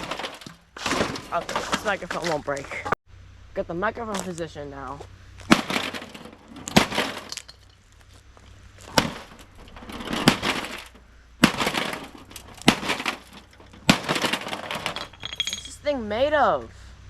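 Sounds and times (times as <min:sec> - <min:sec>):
heavy blows smashing electronics: 0:00.0 - 0:02.3, 0:05.4 - 0:07.8, 0:08.8 - 0:15.3
glass and debris tinkling: 0:05.5 - 0:08.1, 0:08.8 - 0:16.1.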